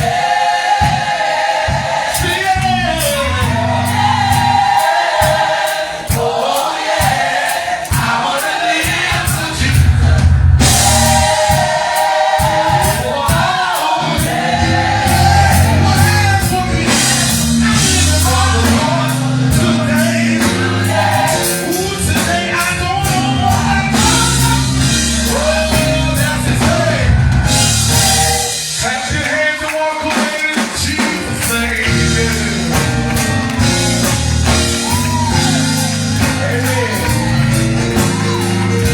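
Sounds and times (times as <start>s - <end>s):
drums: 0.0s - 38.9s
gospel choir singing: 0.0s - 38.9s
live band: 0.0s - 38.9s
bass notes: 2.6s - 4.8s, 9.6s - 11.6s, 14.2s - 28.5s, 31.4s - 38.9s.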